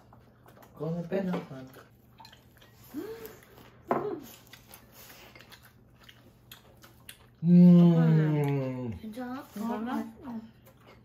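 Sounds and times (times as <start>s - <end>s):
people chewing food: 0.0s - 11.0s
person humming: 7.4s - 9.0s.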